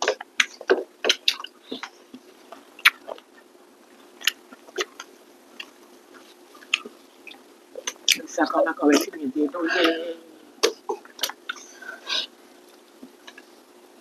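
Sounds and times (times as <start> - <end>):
chewing and lip-smacking: 0.0 - 8.2, 10.6 - 11.7.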